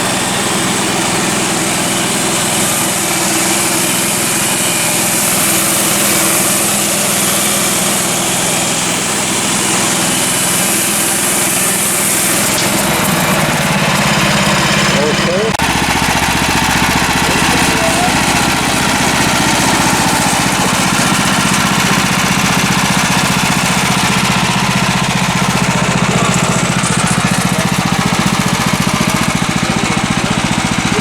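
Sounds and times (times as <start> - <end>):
gas engine under load: 0.0 - 31.0
band blade cutting log hiss: 2.2 - 14.4.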